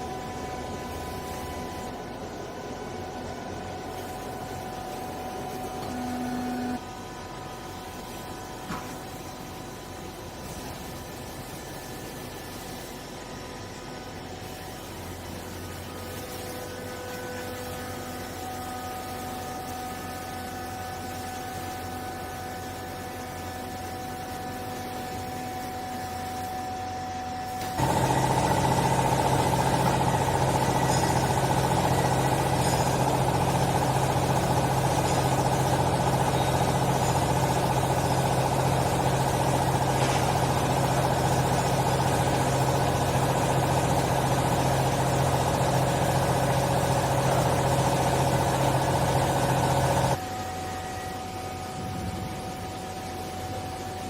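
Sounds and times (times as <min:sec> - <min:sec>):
hydraulic pump motor humming: 0:03.2 - 0:06.9, 0:27.6 - 0:50.4.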